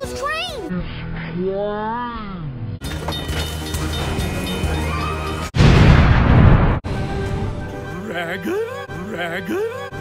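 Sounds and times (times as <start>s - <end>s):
music: 2.8s - 5.6s, 6.8s - 10.0s.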